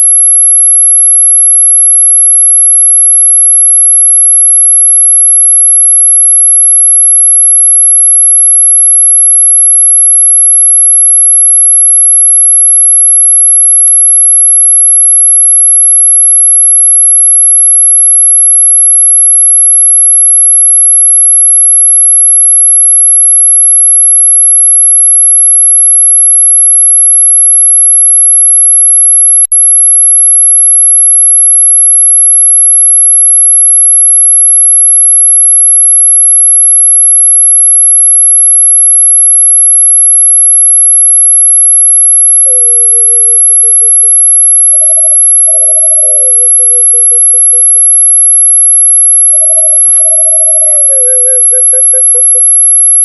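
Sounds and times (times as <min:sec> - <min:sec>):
high-pitched electronic pure tone: 0:40.2 - 0:53.0.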